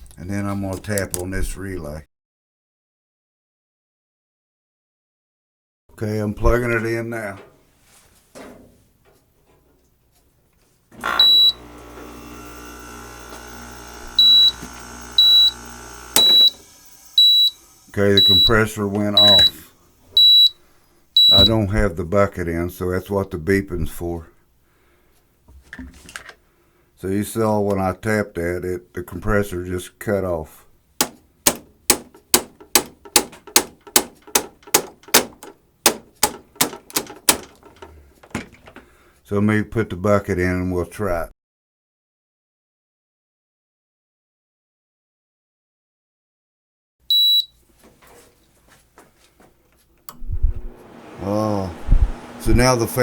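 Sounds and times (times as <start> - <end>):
dehumidifier compressor hum: 11.2 - 20.5, 50.2 - 53.0
short high beeps: 16.2 - 16.6, 17.2 - 17.6, 18.2 - 18.6, 19.2 - 19.6, 20.2 - 20.6, 21.2 - 21.6, 47.1 - 47.5.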